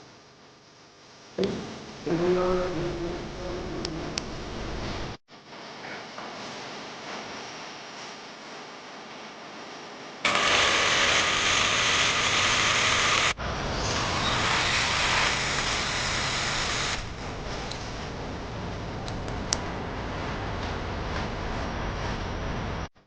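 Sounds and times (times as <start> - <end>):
electric drill running: 10.2 - 13.4, 14.4 - 17.1.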